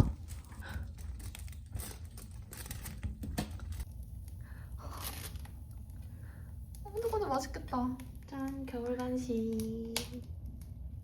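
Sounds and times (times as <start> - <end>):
steady low hum: 0.0 - 11.0
wood stove crackling: 0.0 - 11.0.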